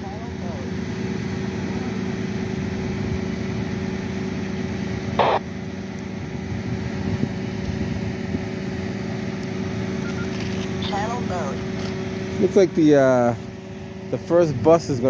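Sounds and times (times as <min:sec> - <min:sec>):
vehicle engines idling: 0:00.0 - 0:15.0
short sharp burst of noise: 0:05.2 - 0:05.4.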